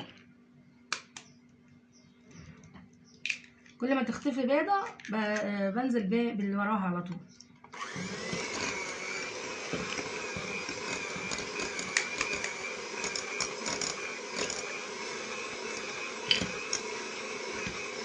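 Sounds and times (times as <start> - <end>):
electric mixer running: 7.7 - 18.0.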